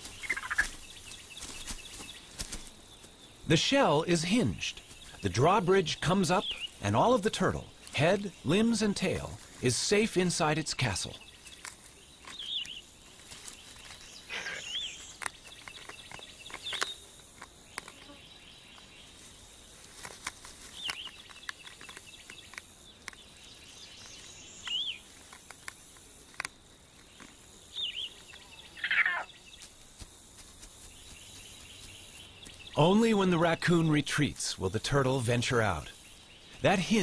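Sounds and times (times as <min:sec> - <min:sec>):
small bird chirping: 0:00.0 - 0:09.5, 0:11.0 - 0:19.2, 0:20.6 - 0:26.1, 0:26.9 - 0:29.8, 0:30.6 - 0:32.8
faint insect buzz: 0:00.0 - 0:32.8.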